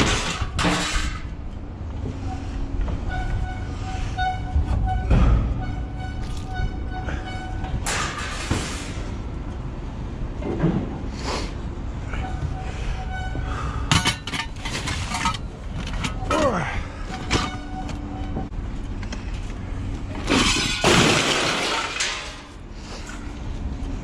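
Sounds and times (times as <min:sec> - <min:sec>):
scrap metal crashing and clanking: 0:00.0 - 0:01.4, 0:07.8 - 0:09.2, 0:13.9 - 0:16.2, 0:20.2 - 0:22.6.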